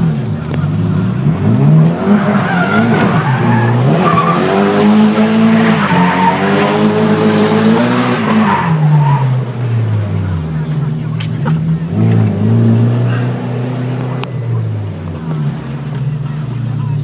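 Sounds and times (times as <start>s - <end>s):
car engine revving: 0.0s - 17.0s
tyres squealing: 1.9s - 9.4s.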